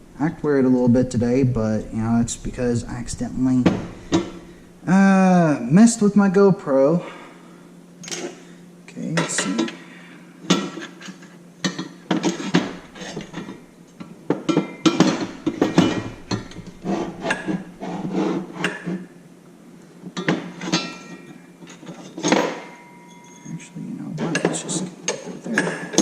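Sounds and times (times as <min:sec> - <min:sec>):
metal parts clanking: 0:12.1 - 0:13.6, 0:14.9 - 0:18.4.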